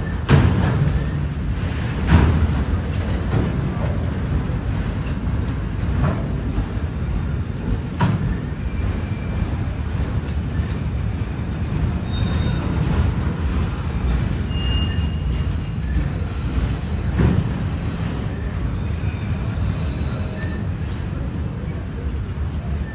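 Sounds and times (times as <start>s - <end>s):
steel wheels rumbling on rails: 0.0s - 22.9s
train car clank: 0.0s - 22.9s
faint wheel squeals: 12.0s - 12.9s, 14.4s - 17.1s, 18.2s - 22.9s.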